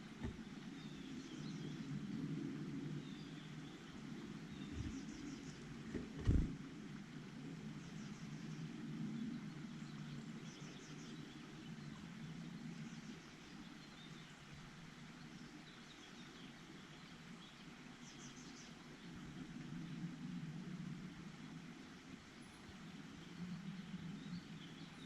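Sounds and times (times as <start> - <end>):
small birds chirping: 0.0 - 2.3, 2.9 - 6.6, 22.2 - 25.0
faint low rumble: 0.0 - 14.4.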